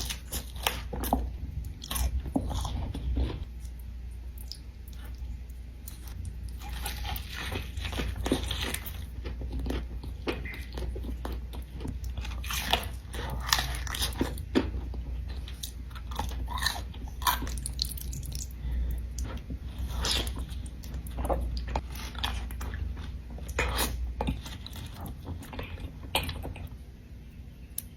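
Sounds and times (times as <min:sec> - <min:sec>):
person chewing crunchy food: 0:00.0 - 0:26.9.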